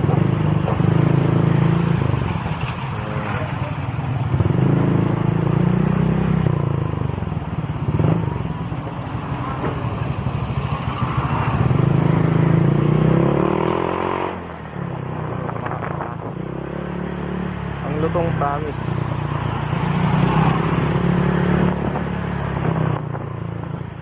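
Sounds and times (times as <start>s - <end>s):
scooter engine revving: 0.0s - 14.6s.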